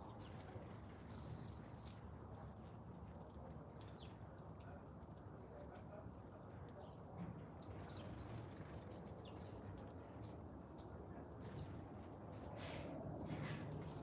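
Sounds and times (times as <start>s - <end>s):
small birds chirping: 0.0s - 2.5s, 3.7s - 4.3s, 6.8s - 12.7s.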